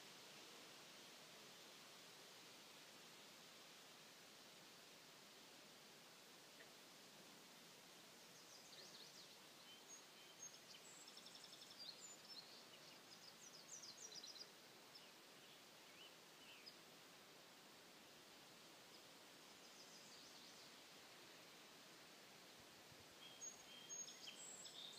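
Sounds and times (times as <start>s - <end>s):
steady hiss: 0.0s - 24.9s
faint songbird chirps: 8.2s - 16.9s, 18.0s - 21.6s, 22.9s - 24.9s.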